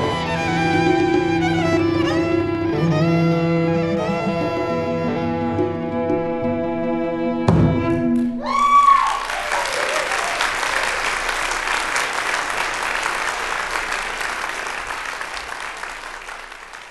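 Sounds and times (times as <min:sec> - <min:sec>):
person whooping: 0:08.4 - 0:11.0
audience applauding: 0:08.4 - 0:16.9.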